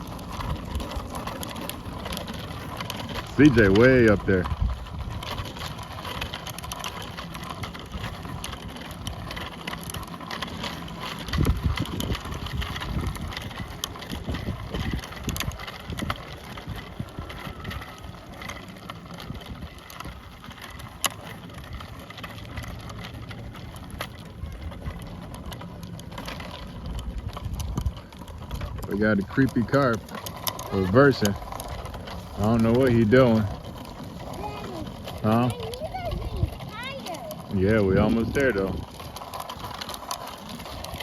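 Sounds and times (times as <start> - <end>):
bicycle tyre noise: 0.0 - 41.0
bike clicks and rattles: 0.0 - 41.0
wind on microphone: 11.2 - 17.9.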